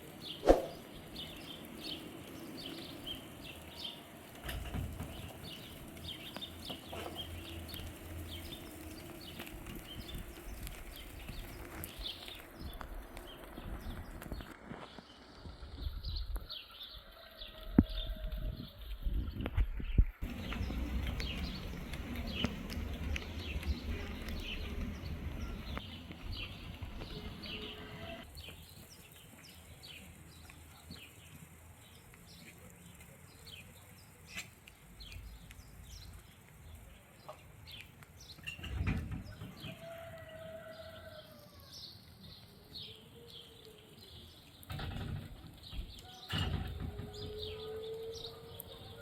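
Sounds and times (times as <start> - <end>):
small birds chirping: 0.0 - 49.0
low wind rumble: 0.1 - 16.6, 17.6 - 28.4.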